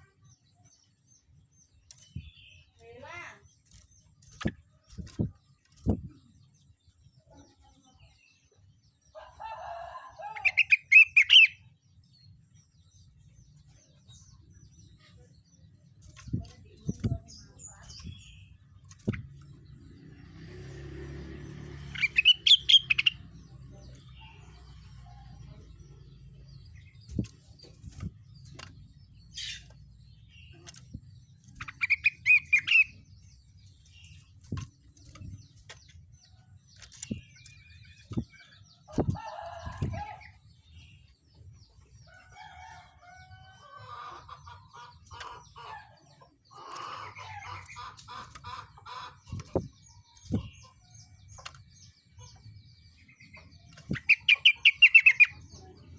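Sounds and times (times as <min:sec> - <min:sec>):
songbird trilling: 0:10.4 - 0:11.7, 0:21.9 - 0:27.4, 0:31.5 - 0:33.3, 0:53.5 - 0:55.6.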